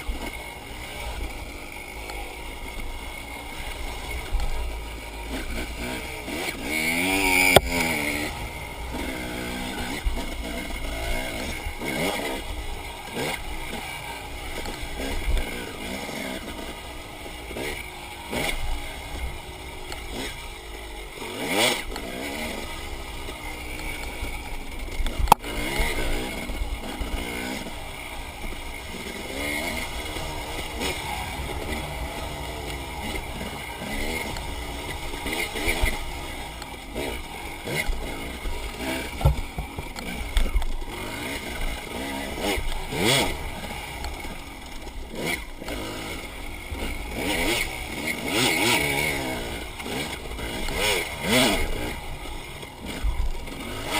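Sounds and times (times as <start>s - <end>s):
dirt bike engine revving: 0.0s - 53.9s
sharp knocks: 39.2s - 39.9s.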